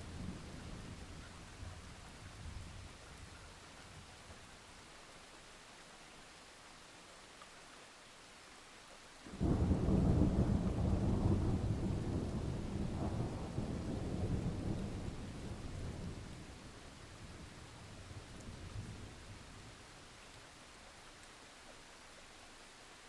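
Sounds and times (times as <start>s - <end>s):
steady rain: 0.0s - 23.0s
thunder rumbling: 9.3s - 16.4s.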